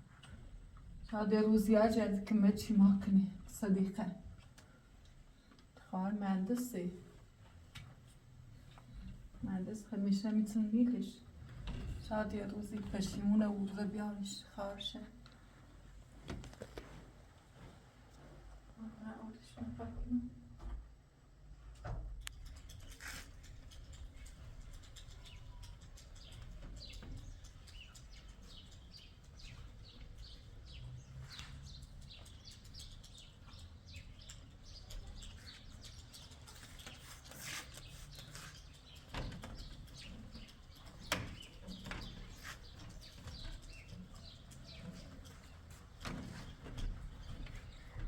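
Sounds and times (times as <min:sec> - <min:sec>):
small birds chirping: 0:22.3 - 0:48.0.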